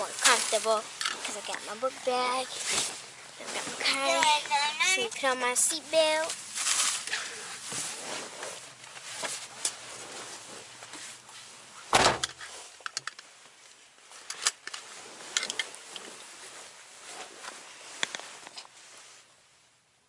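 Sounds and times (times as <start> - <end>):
car door slamming: 11.9 - 12.4.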